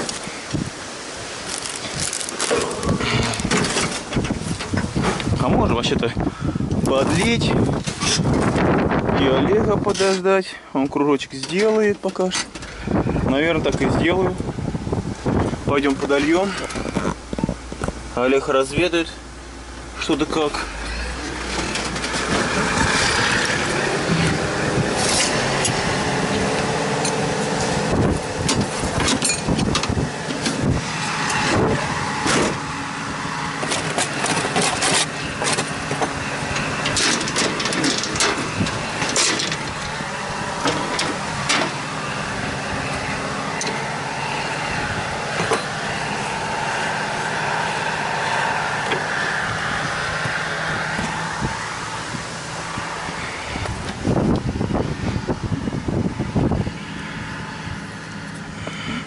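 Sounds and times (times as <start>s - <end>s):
tractor diesel engine running: 0.0s - 59.0s
metallic clanks and rattles: 1.8s - 5.4s, 28.4s - 32.6s, 33.6s - 40.0s.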